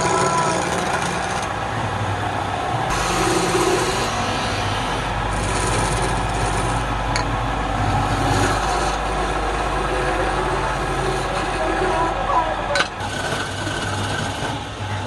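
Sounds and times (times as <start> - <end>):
turning tool scraping wood: 0.0 - 1.5, 5.3 - 7.3, 7.9 - 14.7
lathe motor humming: 0.0 - 15.0.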